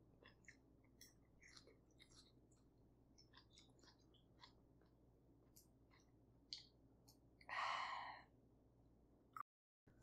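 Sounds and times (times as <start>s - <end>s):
faint chewing: 0.0s - 7.5s.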